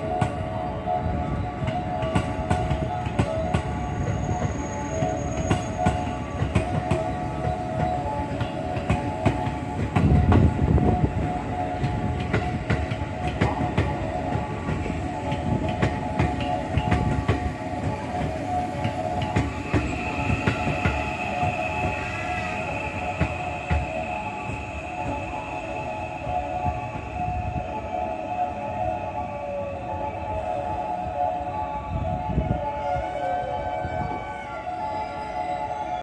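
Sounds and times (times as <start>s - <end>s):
train rumble and whine: 0.0s - 36.0s
train wheels clicking over rail joints: 1.6s - 28.0s.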